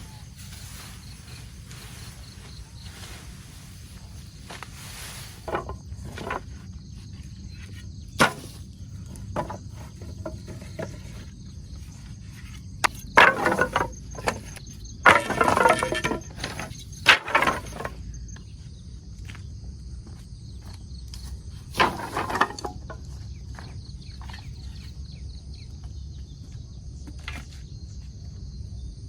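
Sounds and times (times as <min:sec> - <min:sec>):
rustling: 0:00.0 - 0:11.3, 0:12.4 - 0:18.0, 0:21.7 - 0:23.0
insects chirping: 0:00.0 - 0:29.0.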